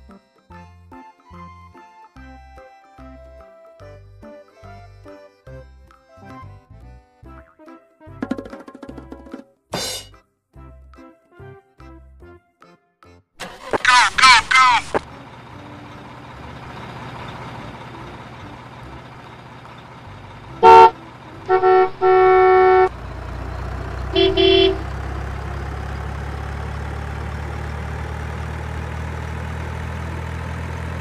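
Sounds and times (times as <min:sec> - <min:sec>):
heavy truck engine idling: 0:13.4 - 0:31.0
truck horn honking: 0:20.0 - 0:25.1.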